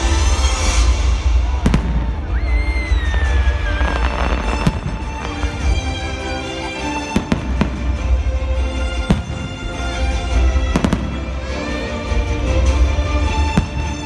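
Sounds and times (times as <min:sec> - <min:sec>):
fireworks bangs: 0:00.0 - 0:06.1, 0:06.7 - 0:08.3, 0:10.6 - 0:11.4
firework crackle: 0:00.0 - 0:08.3
music soundtrack: 0:00.0 - 0:14.0.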